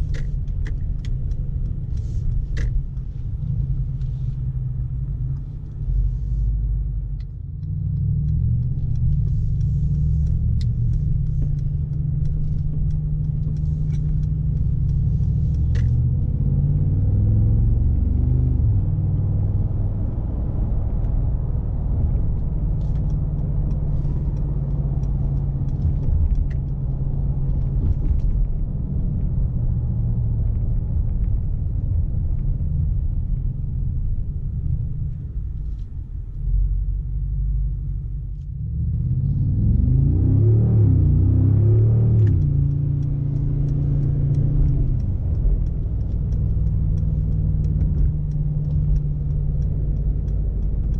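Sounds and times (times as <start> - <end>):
car engine low rumble: 0.0 - 50.9
faint clicks: 41.0 - 50.9.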